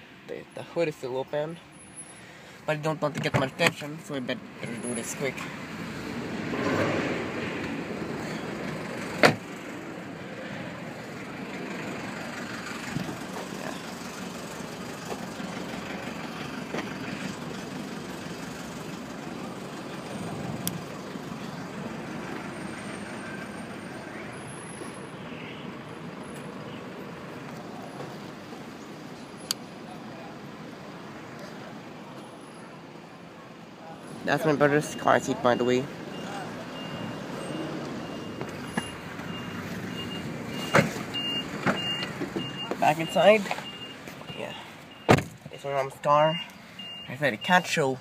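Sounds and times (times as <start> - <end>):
car panels knocking shut: 45.1 - 45.4.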